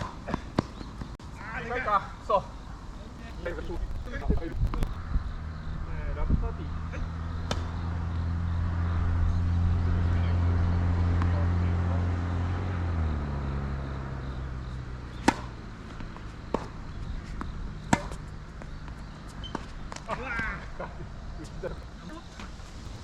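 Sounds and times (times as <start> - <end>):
passing vehicle engine hum: 2.8 - 20.2
tennis ball racket strikes and bounces: 15.1 - 16.8, 17.4 - 18.2.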